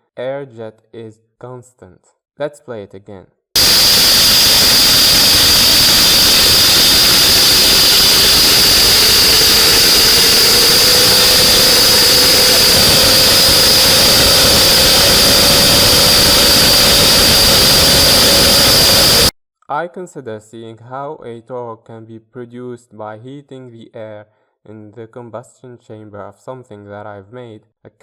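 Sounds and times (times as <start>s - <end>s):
faint rising engine tone: 3.6s - 19.3s
rush of air with high whistle: 3.6s - 19.3s.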